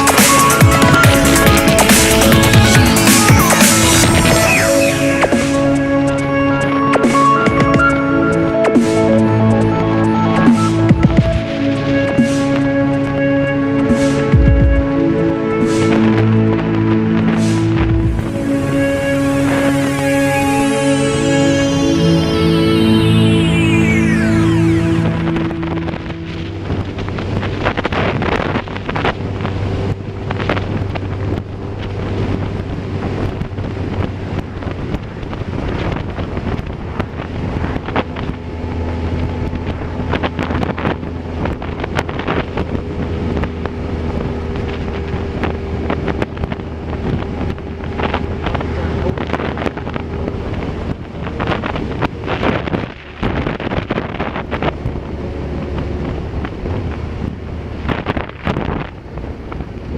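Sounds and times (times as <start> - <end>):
wind buffeting microphone: 0.0 - 20.8, 24.9 - 59.9
low engine drone: 0.0 - 59.9.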